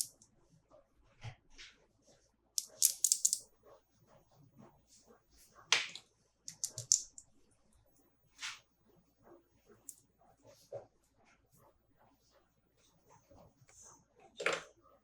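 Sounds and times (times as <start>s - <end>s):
plastic toys and packaging handled: 2.6s - 3.4s, 5.8s - 7.3s.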